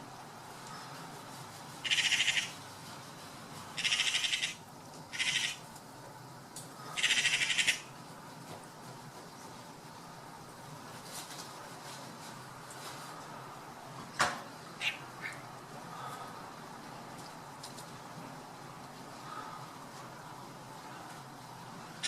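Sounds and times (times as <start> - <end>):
bird harsh rasping calls: 1.8 - 2.6, 3.8 - 5.6, 6.9 - 7.9, 14.8 - 15.5.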